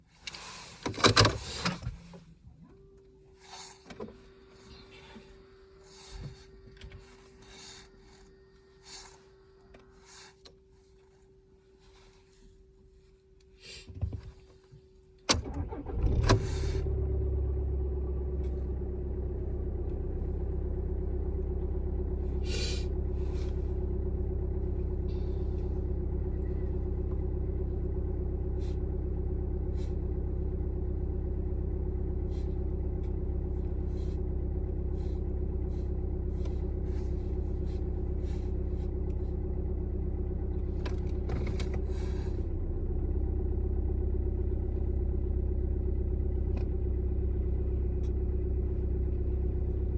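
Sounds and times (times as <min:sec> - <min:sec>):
diesel engine cranking: 0:00.3 - 0:02.1, 0:15.3 - 0:49.9
diesel engine idling: 0:15.4 - 0:49.9.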